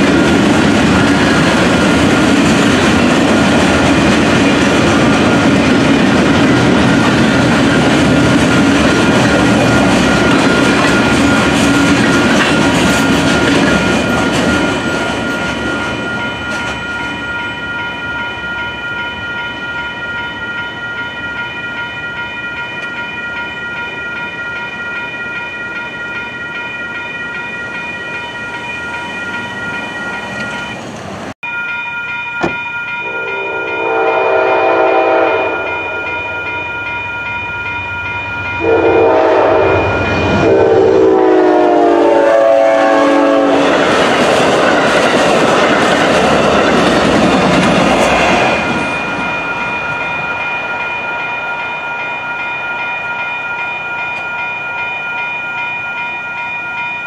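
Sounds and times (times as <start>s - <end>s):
crossing warning bell ringing: 0.0s - 57.0s
locomotive horn: 33.0s - 36.0s, 38.6s - 43.8s.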